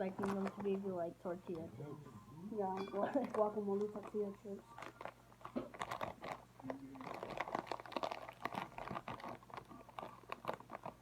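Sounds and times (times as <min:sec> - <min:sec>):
chip bag crinkling: 0:00.0 - 0:00.8, 0:03.0 - 0:11.0
chips rattling inside bag: 0:03.3 - 0:11.0.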